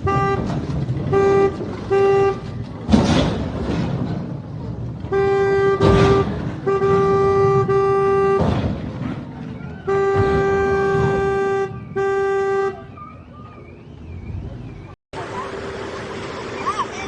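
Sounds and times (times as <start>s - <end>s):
vehicle horn blasts: 0.0s - 2.6s, 5.1s - 8.6s, 9.8s - 13.0s.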